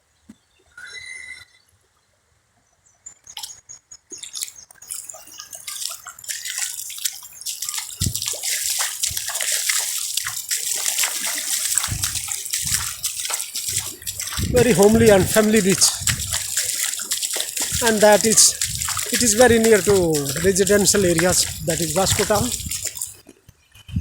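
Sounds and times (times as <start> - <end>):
water splashing and sloshing: 3.4 - 23.3.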